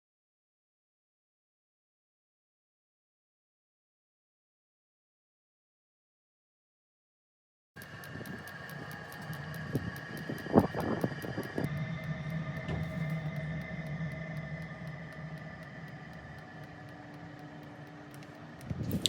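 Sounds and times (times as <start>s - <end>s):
fine regular ticking: 7.8s - 19.0s
heater fan motor humming: 7.8s - 19.0s.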